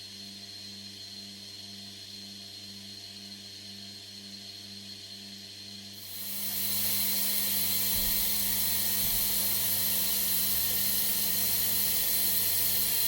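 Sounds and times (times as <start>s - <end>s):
loud steady hiss: 6.0s - 13.0s
machine hum and whine: 6.0s - 13.0s.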